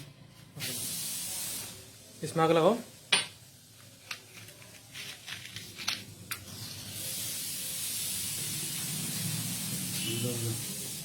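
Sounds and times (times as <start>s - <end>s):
steady flame hiss: 0.6s - 4.1s, 6.4s - 11.0s.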